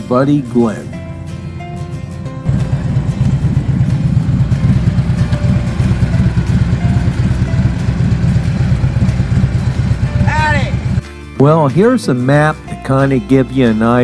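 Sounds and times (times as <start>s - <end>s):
motorcycle exhaust rumbling: 1.0s - 11.0s.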